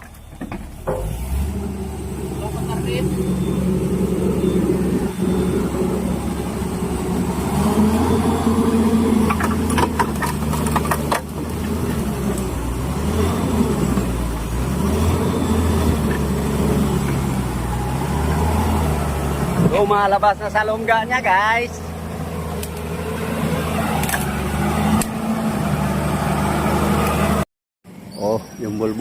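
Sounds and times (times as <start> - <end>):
excavator diesel engine running: 0.0 - 27.4.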